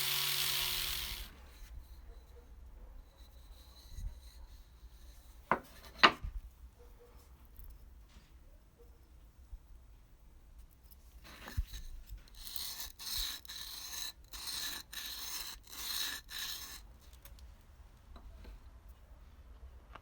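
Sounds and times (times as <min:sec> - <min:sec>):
scraping strokes on metal: 0:11.3 - 0:16.9.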